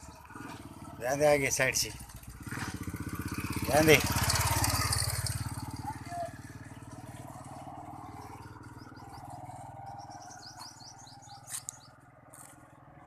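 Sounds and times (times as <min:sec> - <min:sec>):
motorcycle engine running: 0:00.0 - 0:13.0
bird chirping: 0:07.5 - 0:12.0.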